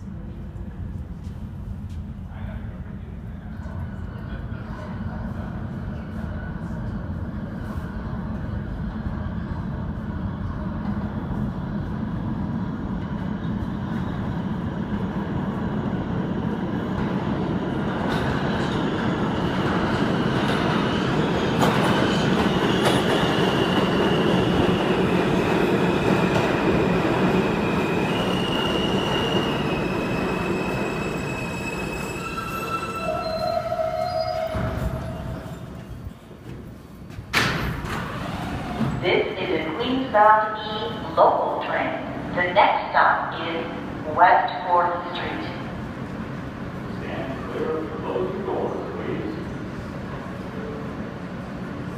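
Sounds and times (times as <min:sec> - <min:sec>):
subway train rumble: 0:00.0 - 0:51.9.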